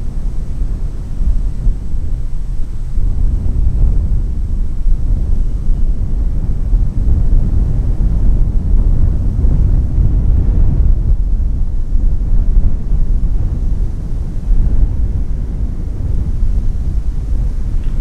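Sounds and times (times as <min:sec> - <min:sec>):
wind buffeting microphone: 0:00.0 - 0:18.0
train rumbling past: 0:13.6 - 0:18.0.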